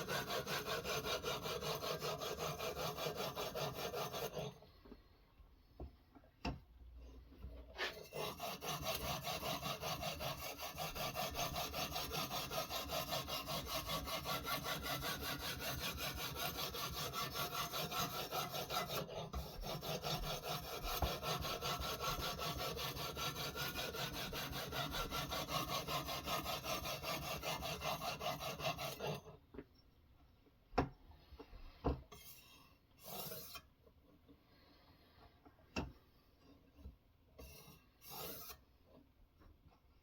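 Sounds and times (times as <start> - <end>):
knife rasping on sharpening stone: 0.0 - 4.6, 7.8 - 29.3, 32.1 - 33.7, 37.4 - 38.6.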